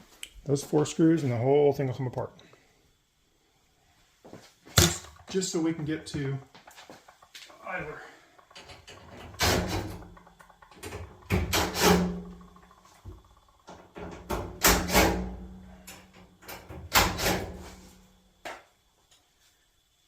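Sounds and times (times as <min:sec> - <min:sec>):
sheet metal clattering and scraping: 0:04.9 - 0:18.0.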